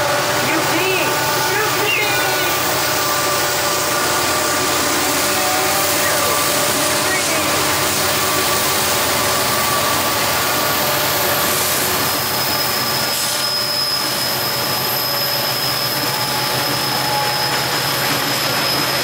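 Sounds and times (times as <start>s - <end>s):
diesel locomotives running: 0.0s - 19.0s
high-pitched whine: 0.0s - 19.0s.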